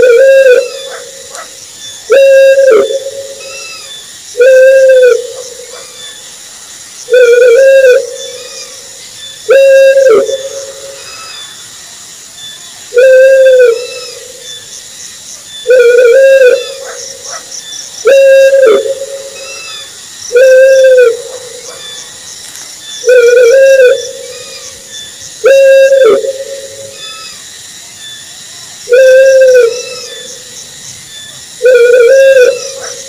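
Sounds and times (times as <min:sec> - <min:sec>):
owl hooting: 0:00.0 - 0:06.2, 0:07.1 - 0:08.8, 0:09.5 - 0:11.5, 0:12.9 - 0:14.5, 0:15.6 - 0:22.1, 0:23.0 - 0:27.4, 0:28.9 - 0:30.4, 0:31.6 - 0:33.0.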